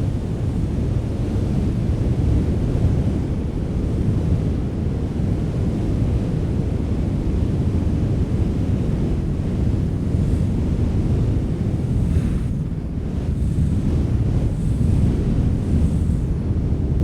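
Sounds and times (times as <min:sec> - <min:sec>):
wind blowing: 0:00.0 - 0:03.9, 0:08.0 - 0:17.0.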